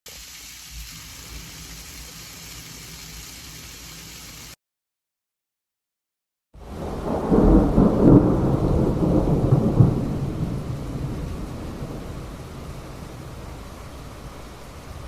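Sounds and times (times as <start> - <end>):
steady rain: 0.1 - 4.6, 6.6 - 15.0
thunder rolling: 6.6 - 15.0.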